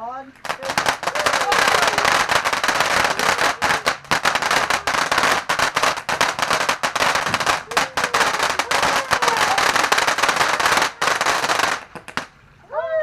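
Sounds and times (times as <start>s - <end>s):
firework fizzing and crackling: 0.4s - 12.4s.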